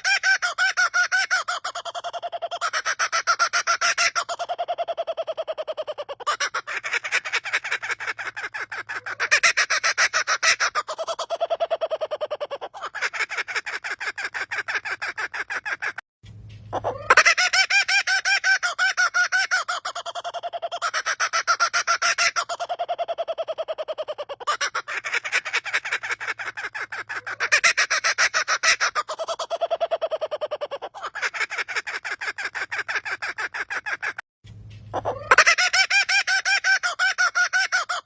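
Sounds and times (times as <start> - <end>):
bird rapid laughing call: 0.0 - 16.0, 16.7 - 34.2, 34.9 - 38.0.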